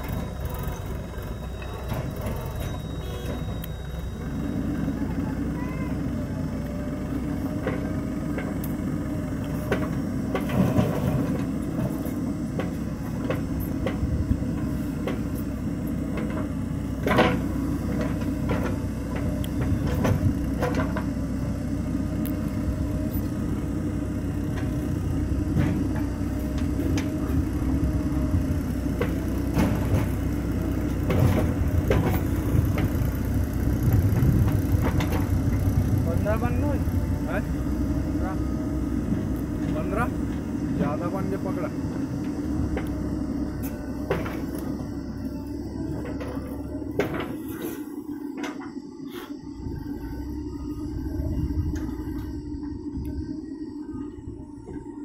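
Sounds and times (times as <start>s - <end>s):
diesel engine low rumble: 0.0s - 55.0s
machine knocks and clanks: 9.6s - 15.4s, 16.1s - 21.1s, 28.9s - 33.2s, 33.9s - 36.7s, 46.0s - 47.6s.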